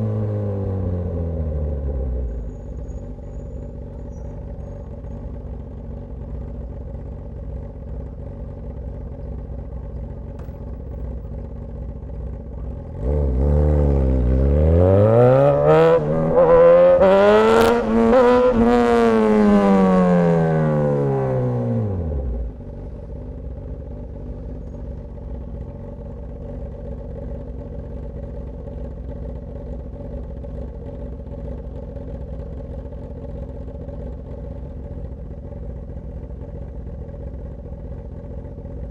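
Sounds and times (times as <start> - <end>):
motorcycle engine revving: 0.0 - 38.9
exhaust cracks: 10.2 - 13.1, 15.3 - 23.7.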